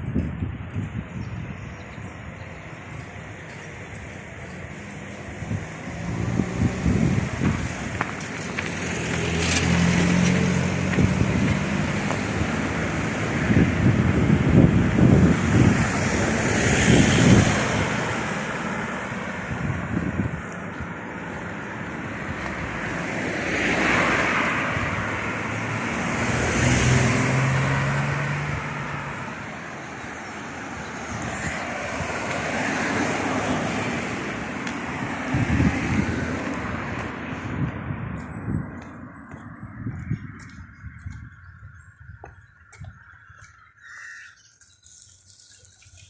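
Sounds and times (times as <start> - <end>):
wind buffeting microphone: 0.0 - 43.8
traffic-like rumble: 0.0 - 46.0.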